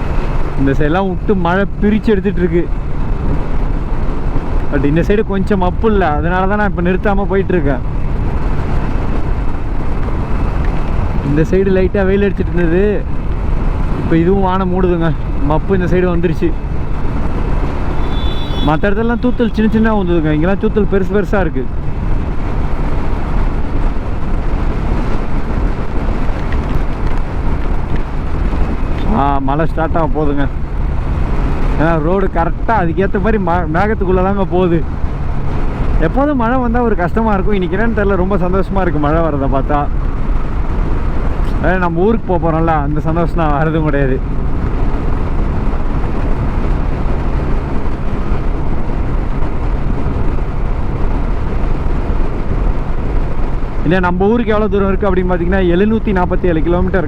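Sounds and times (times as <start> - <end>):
wind and road noise: 0.0 - 57.0
raindrops tapping helmet visor: 25.0 - 29.1.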